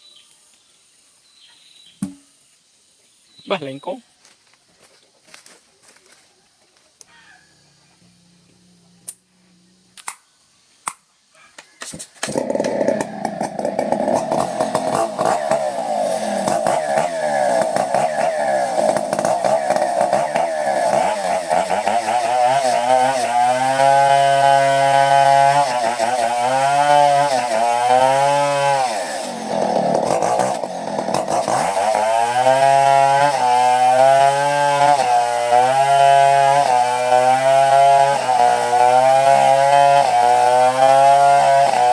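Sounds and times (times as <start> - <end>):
chainsaw revving and cutting wood: 12.2 - 41.9.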